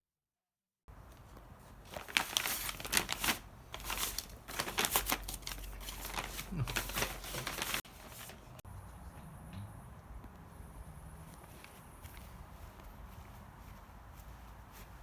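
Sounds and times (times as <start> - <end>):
packaging crinkling: 1.9 - 8.6.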